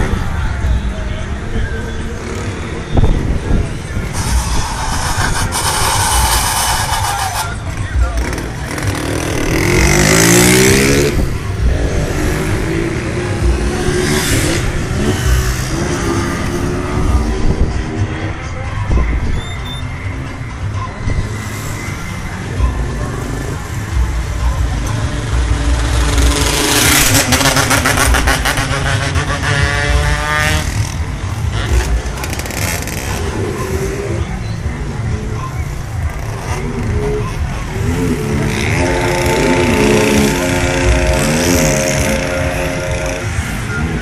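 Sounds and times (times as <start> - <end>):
motorcycle engines revving: 0.0 - 44.0
motorcycle passing close: 37.8 - 44.0.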